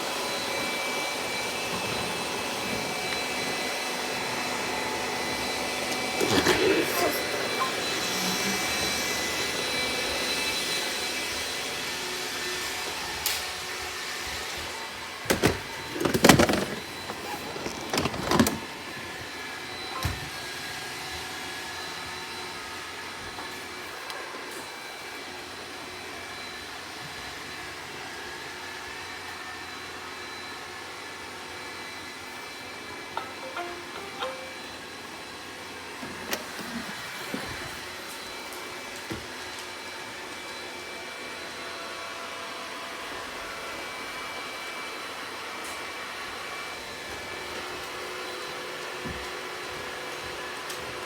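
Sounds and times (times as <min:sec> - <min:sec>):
robot vacuum cleaner humming: 0:00.0 - 0:24.5, 0:29.9 - 0:38.8.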